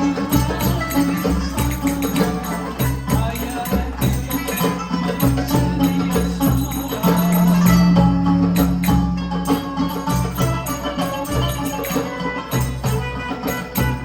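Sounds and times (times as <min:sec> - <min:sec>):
hand percussion beat: 0:00.0 - 0:14.0
tambourine jingles: 0:00.0 - 0:14.0
folk instrumental melody: 0:03.8 - 0:14.0.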